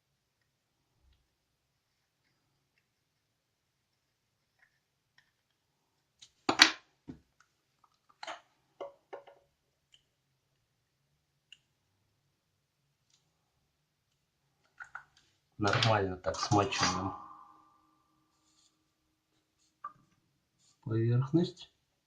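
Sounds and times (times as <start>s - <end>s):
small clicks and knocks of handling: 4.4s - 10.6s, 14.1s - 16.9s.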